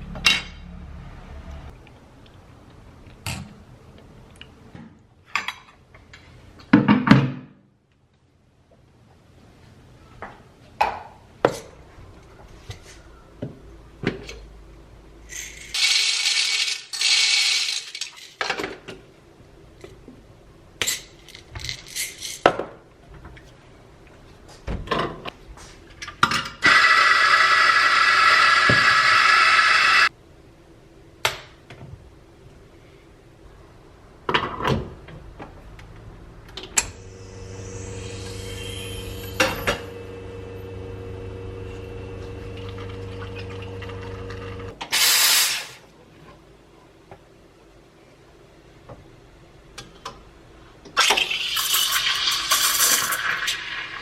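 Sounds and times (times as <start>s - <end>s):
short hiss: 44.9s - 45.8s.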